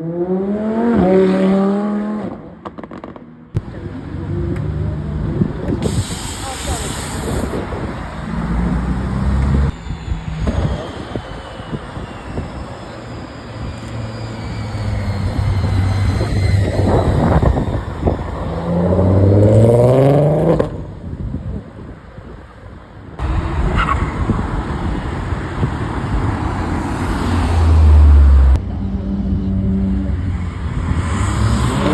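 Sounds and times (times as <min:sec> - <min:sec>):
cars driving past: 0:00.0 - 0:21.4, 0:23.2 - 0:31.9
car engine revving hard: 0:30.8 - 0:31.9.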